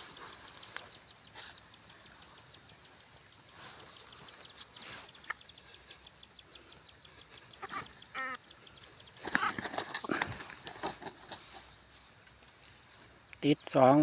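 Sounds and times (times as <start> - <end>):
faint rural ambience: 0.0 - 14.0
insect trilling: 0.0 - 14.0
soft rustles: 9.2 - 11.8.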